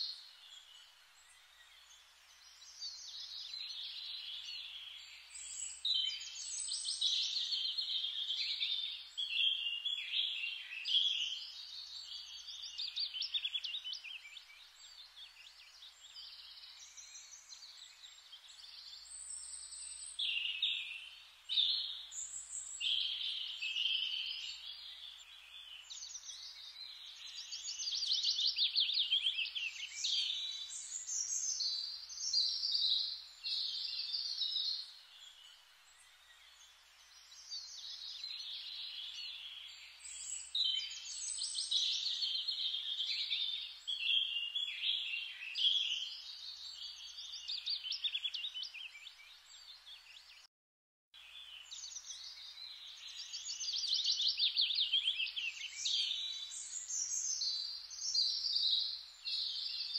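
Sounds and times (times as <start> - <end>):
songbirds trilling and chirping: 0.0 - 50.5, 51.2 - 59.9.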